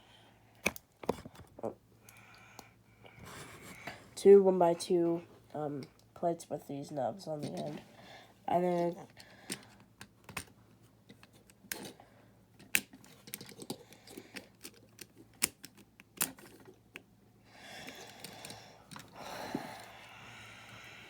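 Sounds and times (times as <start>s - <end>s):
plastic bricks clicking: 12.6s - 17.0s.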